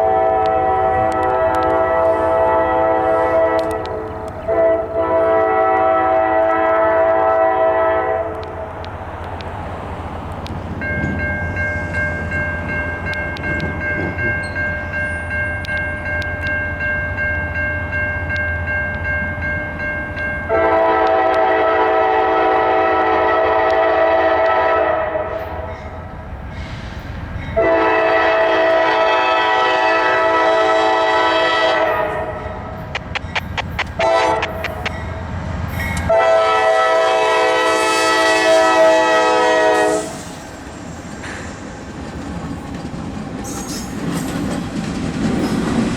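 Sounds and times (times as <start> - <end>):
train air horn blasts: 0.0 - 8.6, 20.5 - 26.0, 27.6 - 35.2, 36.0 - 40.6
diesel locomotive rumble: 0.0 - 45.9.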